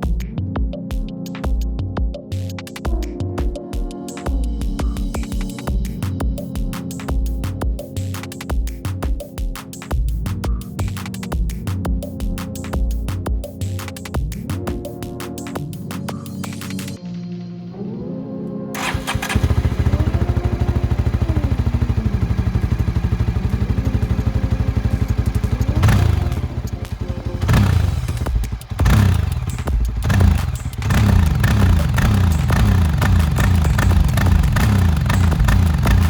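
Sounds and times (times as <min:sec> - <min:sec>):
motorcycle engine idling and revving: 0:18.8 - 0:36.0.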